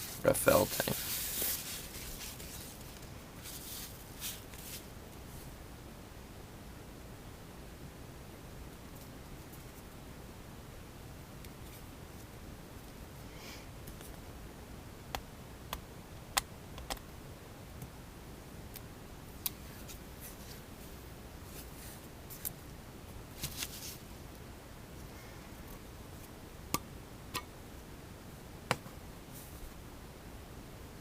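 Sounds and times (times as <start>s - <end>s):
cardboard rustling scrapes: 0.0s - 4.9s.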